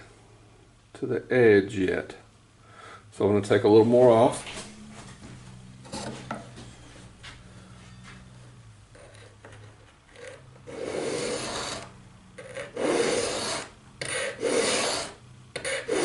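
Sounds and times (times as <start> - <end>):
file scraping steel edge: 5.8 - 6.4, 9.0 - 16.0.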